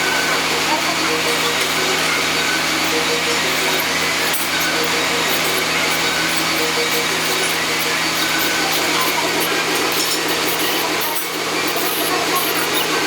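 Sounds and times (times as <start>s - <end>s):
electric power tool running: 0.0s - 13.0s.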